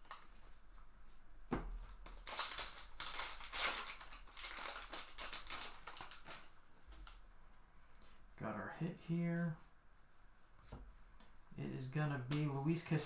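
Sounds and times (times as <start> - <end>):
plastic wrapper crinkling and tearing: 2.0 - 7.2.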